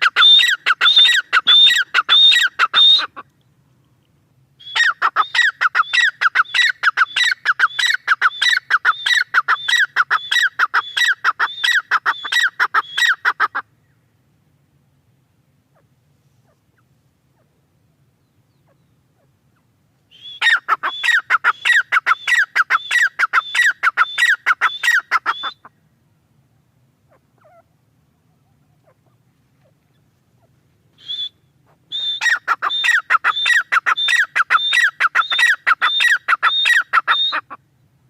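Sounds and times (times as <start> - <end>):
francolin calling shrill notes: 0.0 - 3.2.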